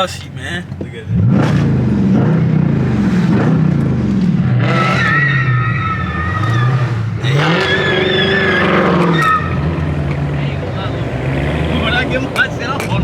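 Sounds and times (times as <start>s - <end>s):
car engines revving: 0.0s - 13.0s
tire squeal: 4.5s - 12.6s.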